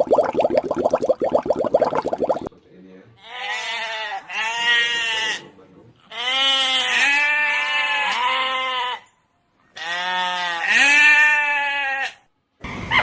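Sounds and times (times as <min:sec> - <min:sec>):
goat bleating: 0:03.2 - 0:05.5, 0:06.1 - 0:09.1, 0:09.7 - 0:12.2.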